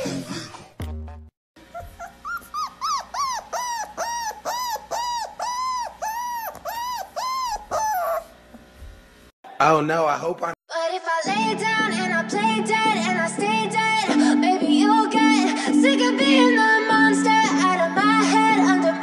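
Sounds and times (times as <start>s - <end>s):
dog whining: 1.6s - 8.4s.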